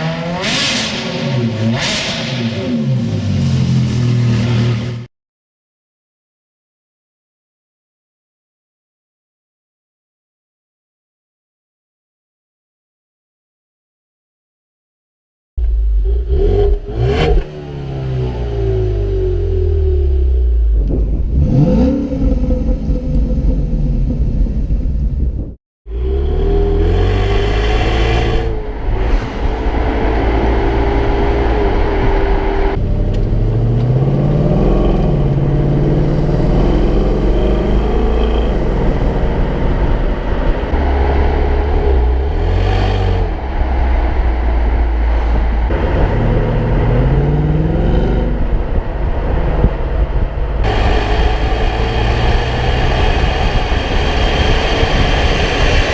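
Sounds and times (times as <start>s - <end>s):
car engine accelerating hard: 16.0s - 24.7s, 25.9s - 55.9s.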